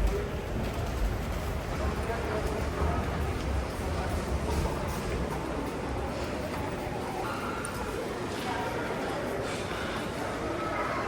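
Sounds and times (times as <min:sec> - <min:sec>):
murmur of distant voices: 0:00.0 - 0:11.0.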